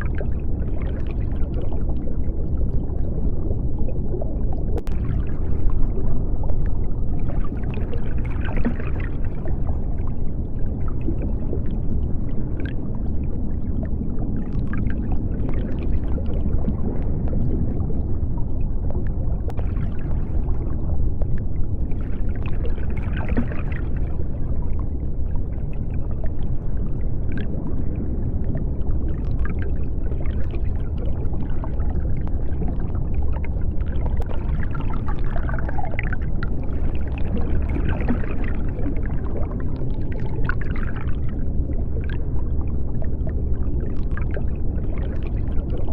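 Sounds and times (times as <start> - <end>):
bubbling: 0.0 - 45.9
low underwater rumble: 0.0 - 45.9.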